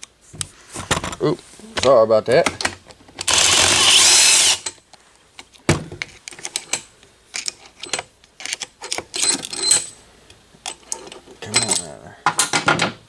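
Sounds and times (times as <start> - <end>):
power drill whining: 3.3 - 4.6.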